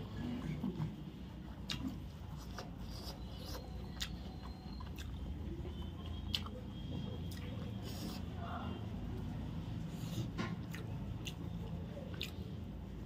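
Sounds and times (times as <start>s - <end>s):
person chewing: 0.0s - 8.5s, 9.9s - 12.8s
wet mouth clicks: 1.6s - 5.3s, 10.5s - 12.5s.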